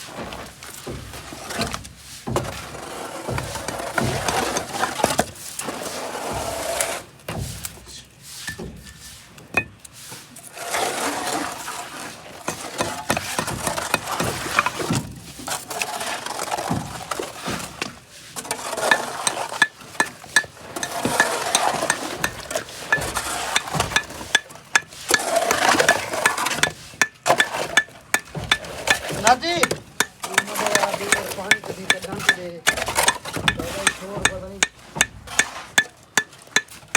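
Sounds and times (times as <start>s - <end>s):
metal tools scraping and clinking: 18.9s - 36.9s
sharp knocks and clicks: 18.9s - 36.9s.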